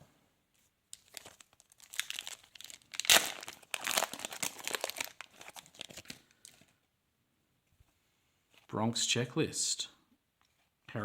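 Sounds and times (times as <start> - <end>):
foil wrapper crinkling and tearing: 0.9 - 6.7.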